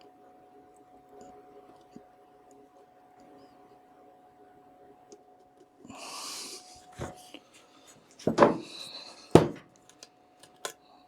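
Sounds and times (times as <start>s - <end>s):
containers knocking on a bench: 8.3s - 8.7s, 9.4s - 9.6s.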